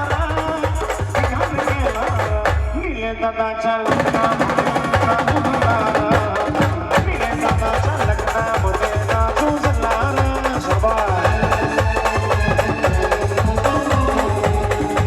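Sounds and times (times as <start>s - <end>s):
sharp percussion strikes: 3.9s - 15.0s
live band music: 9.2s - 15.0s.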